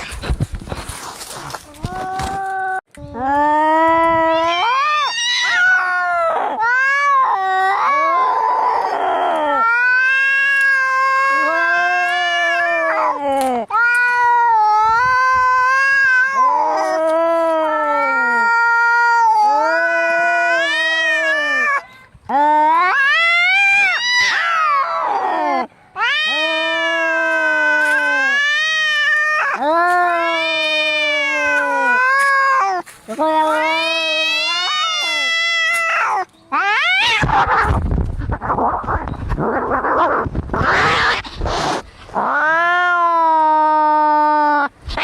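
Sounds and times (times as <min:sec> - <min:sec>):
rough cat cry: 0:01.7 - 0:45.0
cats yowling: 0:03.4 - 0:45.0.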